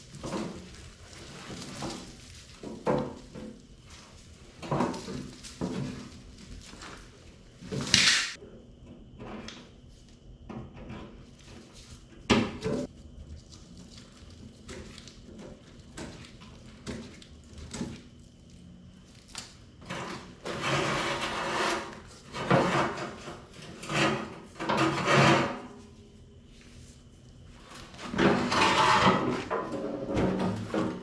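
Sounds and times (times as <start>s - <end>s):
scraping and clunking on metal case: 27.9s - 31.0s.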